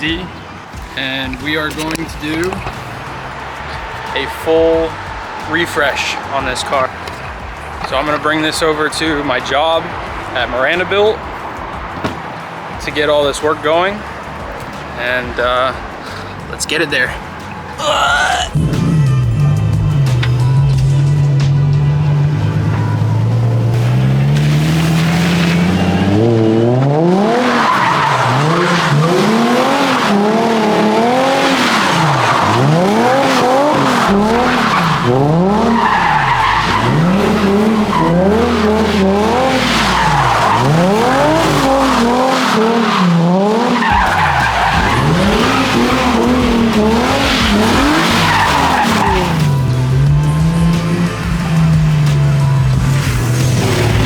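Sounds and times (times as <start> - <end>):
car engine revving: 0.0 - 54.0
tires screeching: 0.0 - 54.0.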